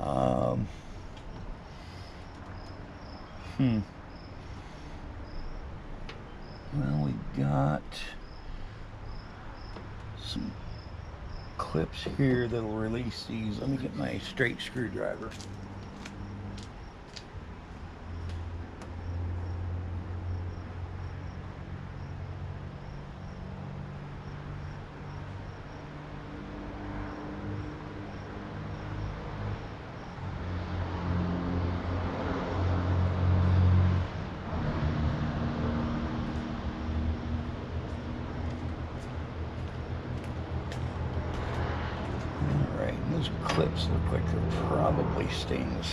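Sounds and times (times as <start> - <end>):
vehicle engine rumbling: 0.0 - 45.9.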